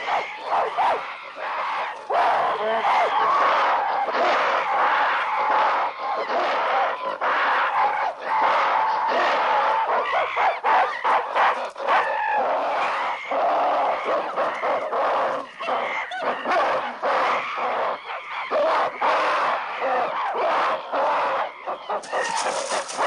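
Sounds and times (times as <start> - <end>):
apes shrieking: 22.0 - 23.0.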